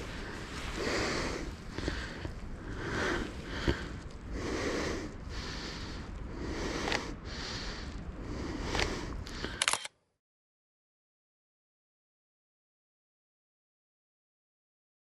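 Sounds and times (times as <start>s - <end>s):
person breathing hard: 0.0s - 9.8s.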